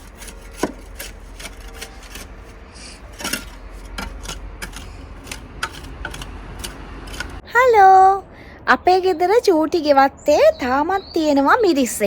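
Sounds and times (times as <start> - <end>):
scraping and rubbing: 0.0 - 7.4
sharp clicks and knocks: 0.0 - 7.4.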